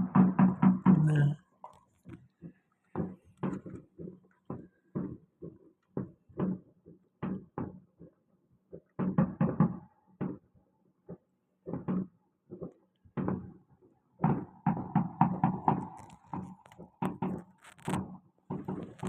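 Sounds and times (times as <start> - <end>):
fireworks bangs and pops: 14.2 - 19.0.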